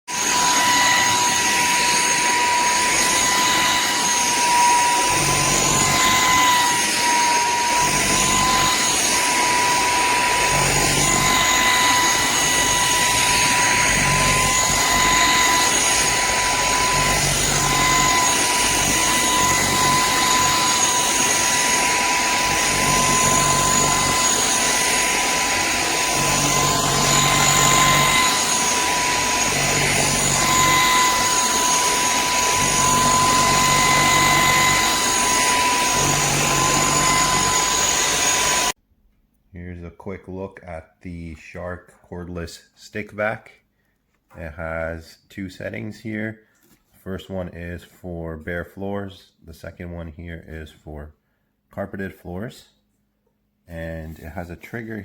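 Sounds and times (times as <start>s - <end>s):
stick vacuum running: 0.1s - 38.8s.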